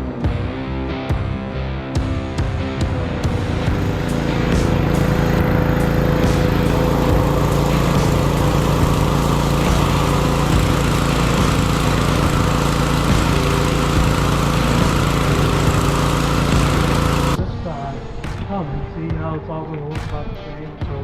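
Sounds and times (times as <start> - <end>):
pressure washer engine humming: 3.2 - 17.4
high-pressure water spray hiss: 3.4 - 17.4.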